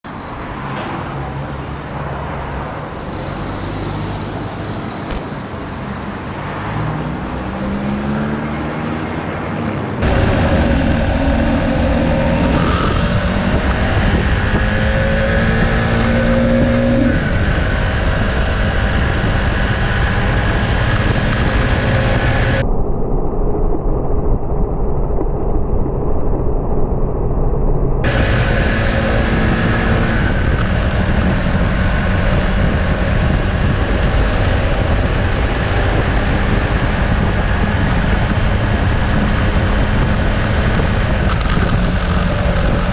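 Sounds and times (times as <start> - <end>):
motorcycle engine accelerating: 7.0 - 22.6, 28.0 - 42.9
rushing air: 9.3 - 42.9.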